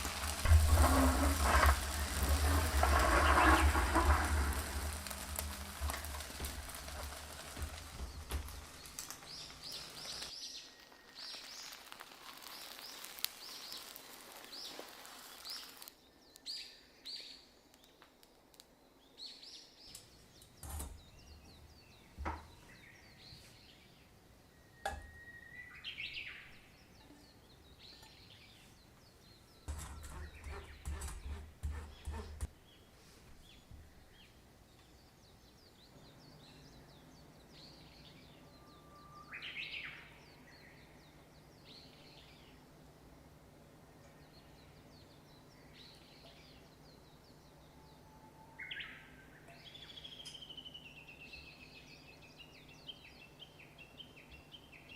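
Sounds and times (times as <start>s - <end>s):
faint bird chirping: 18.6s - 42.9s, 43.8s - 54.9s.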